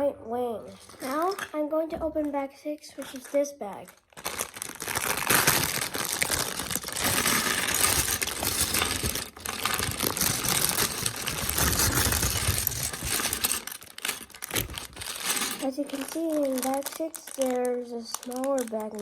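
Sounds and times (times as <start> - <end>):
plastic bricks rattling: 0.8 - 2.3, 3.0 - 19.0
plastic bag torn open: 3.9 - 19.0.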